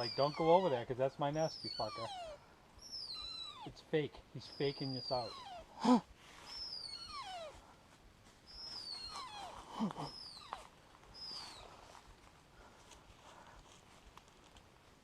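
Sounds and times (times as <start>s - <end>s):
grouse squealing calls: 0.0s - 7.6s, 8.5s - 12.0s
lower falling bird call: 6.4s - 7.6s, 8.5s - 11.8s.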